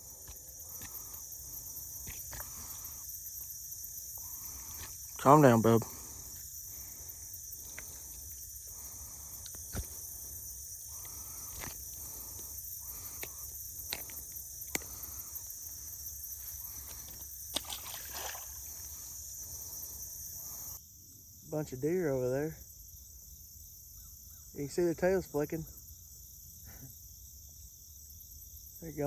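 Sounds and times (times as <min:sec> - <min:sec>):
high-pitched insect chorus: 0:00.0 - 0:29.0
sharp small clicks and knocks: 0:11.0 - 0:15.1.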